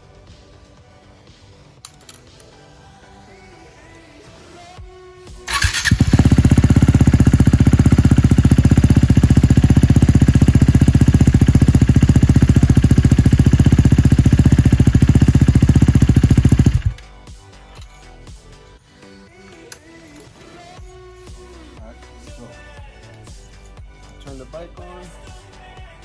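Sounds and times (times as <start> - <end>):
motorcycle engine starting and idling: 5.5 - 17.0.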